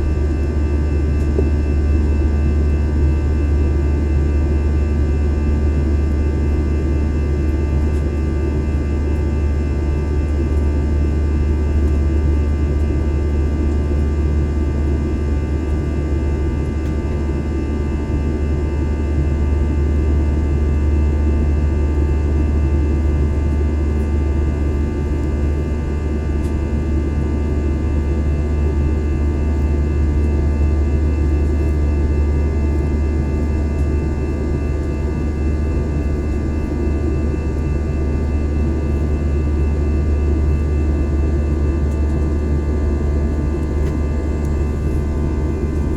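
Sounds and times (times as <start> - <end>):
airliner cabin rumble: 0.0 - 18.4, 22.9 - 45.9.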